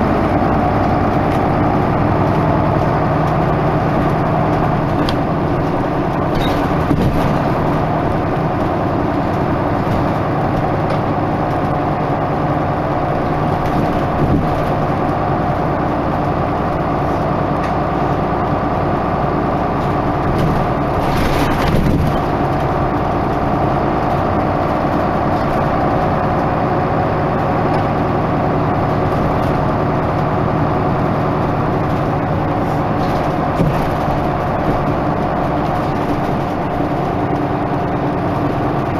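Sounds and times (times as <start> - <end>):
bus diesel engine running: 0.0 - 38.9
knocks and rattles: 4.8 - 11.7, 13.4 - 15.0, 19.8 - 23.0, 31.8 - 38.0.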